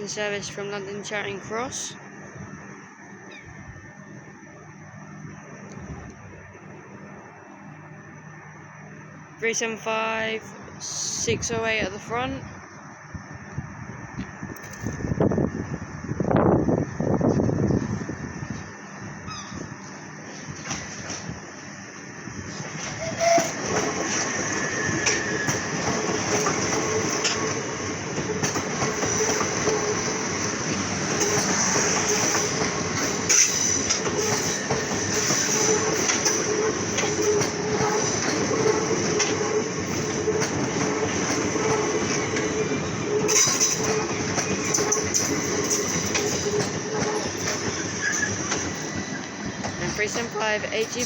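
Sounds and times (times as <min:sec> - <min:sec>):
train wheels rumbling on rail: 0:09.5 - 0:51.0
high wheel squeal: 0:22.9 - 0:23.8, 0:43.1 - 0:49.3.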